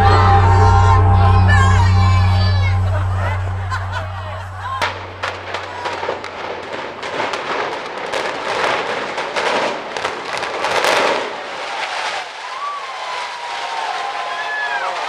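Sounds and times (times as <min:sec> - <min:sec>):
demolition cracks and crackling: 0:05.8 - 0:15.0.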